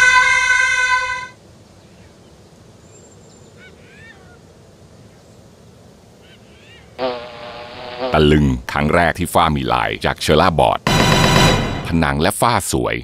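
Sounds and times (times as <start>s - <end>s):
faint birds chirping: 1.4s - 7.0s.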